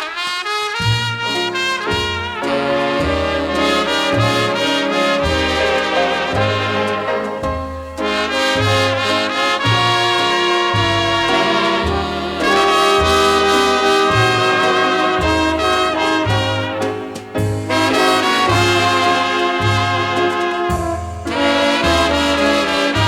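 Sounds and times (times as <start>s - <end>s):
instrumental dance band music: 0.0s - 23.0s
trumpets and trombones: 0.0s - 23.0s
bass line: 0.8s - 23.0s.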